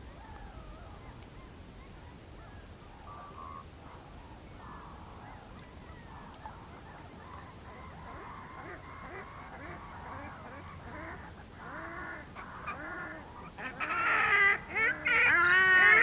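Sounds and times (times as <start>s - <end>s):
swans honking: 5.9s - 16.0s.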